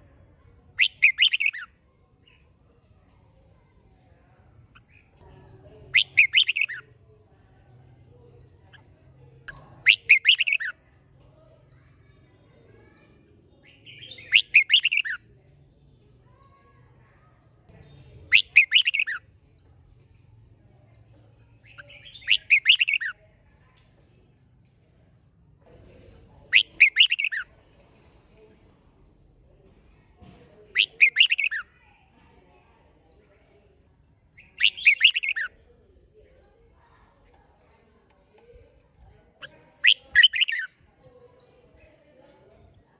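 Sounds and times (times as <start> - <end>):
bird song phrase: 0.1 - 42.9
faint high chirps: 0.6 - 7.0, 26.5 - 27.5, 30.8 - 31.7.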